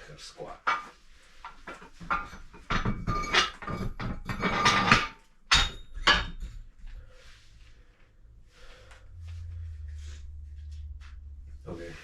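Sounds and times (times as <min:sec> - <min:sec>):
weight plates clattering: 0:00.6 - 0:06.8
sharp metal clanks: 0:01.8 - 0:06.6.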